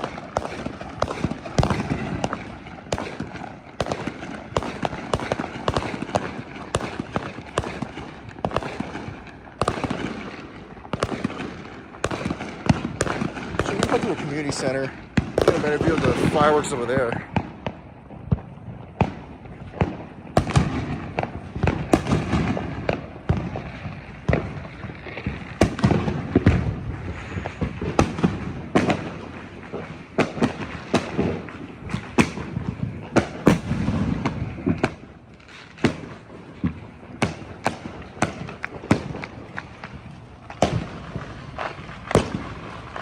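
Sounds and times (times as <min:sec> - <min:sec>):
firecrackers banging: 0:00.0 - 0:43.0.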